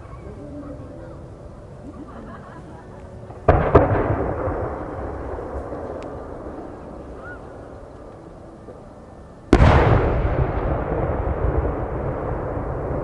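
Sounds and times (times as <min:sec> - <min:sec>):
firework burst echo: 0:03.4 - 0:08.1, 0:09.5 - 0:13.0
firework shell deep boom: 0:03.5 - 0:07.4, 0:09.5 - 0:13.0.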